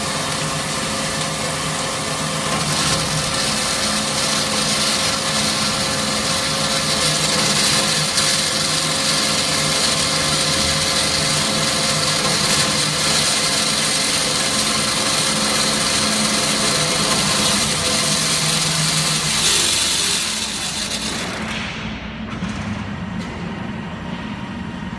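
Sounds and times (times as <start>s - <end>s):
band saw running: 0.0s - 21.8s.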